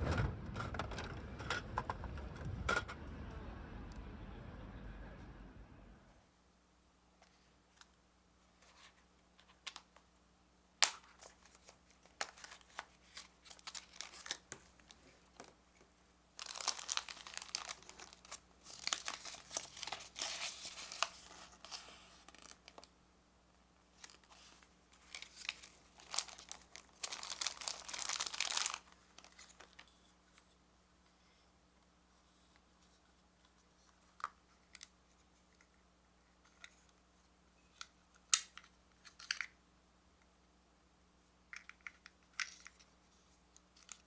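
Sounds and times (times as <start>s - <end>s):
plastic packaging crinkling and tearing: 10.8s - 15.6s, 16.4s - 22.9s, 24.0s - 29.9s.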